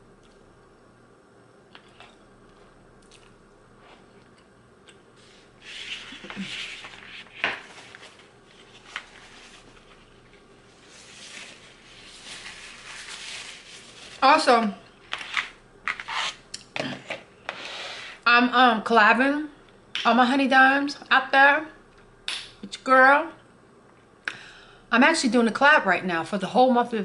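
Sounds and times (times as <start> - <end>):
person chewing food: 1.7 - 5.2.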